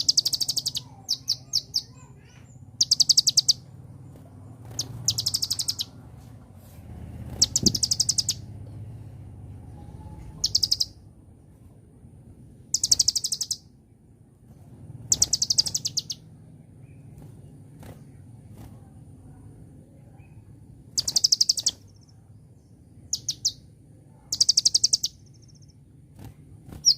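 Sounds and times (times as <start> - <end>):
sunbird trills: 0.0 - 6.0, 7.3 - 8.5, 9.7 - 11.0, 12.7 - 13.7, 15.1 - 17.1, 20.1 - 25.9.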